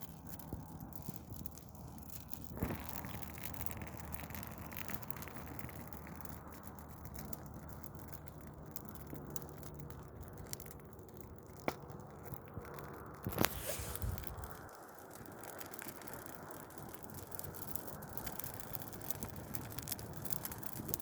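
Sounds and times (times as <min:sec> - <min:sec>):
tree burning with crackles: 0:00.0 - 0:21.0
sharp snap of fire: 0:13.1 - 0:15.9.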